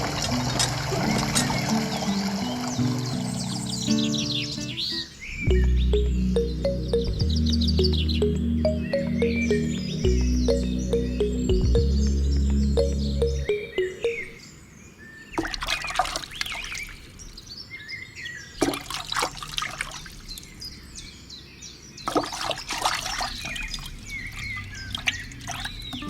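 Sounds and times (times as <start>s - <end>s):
water gushing and splashing: 0.0s - 3.6s, 15.4s - 17.1s, 18.6s - 20.4s, 22.1s - 25.9s
small birds chirping: 0.0s - 26.0s.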